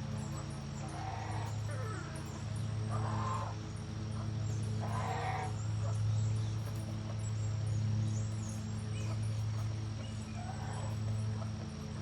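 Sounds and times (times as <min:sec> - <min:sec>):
steady low hum: 0:00.0 - 0:12.0
poultry harsh calls: 0:00.8 - 0:02.2, 0:02.9 - 0:03.6, 0:04.8 - 0:05.6.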